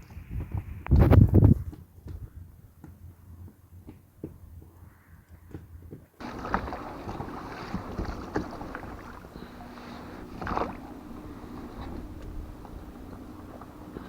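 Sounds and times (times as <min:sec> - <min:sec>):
knocks on boat: 0:06.2 - 0:14.0
loud water splash: 0:06.2 - 0:14.0
water sloshing against hull: 0:06.2 - 0:14.0.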